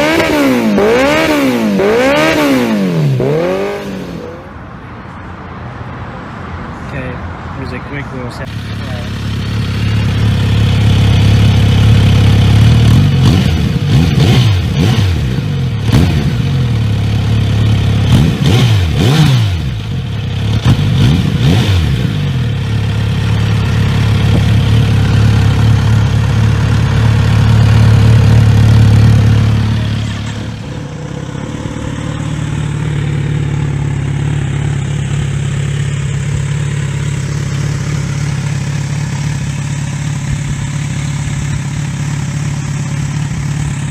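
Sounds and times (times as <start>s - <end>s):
motorcycle engine idling: 8.5s - 19.0s, 19.6s - 43.9s.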